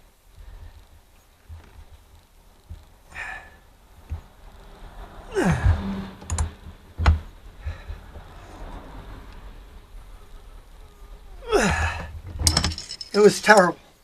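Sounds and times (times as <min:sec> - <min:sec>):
sharp clicks and knocks: 0:06.2 - 0:08.3, 0:12.2 - 0:13.8.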